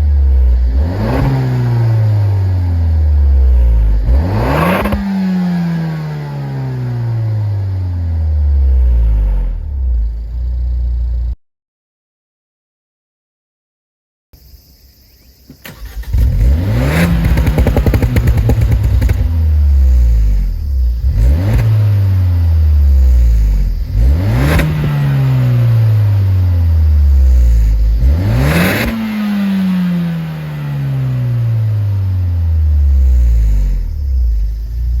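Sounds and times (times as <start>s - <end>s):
car exhaust revving: 0.0s - 11.3s, 15.8s - 35.0s.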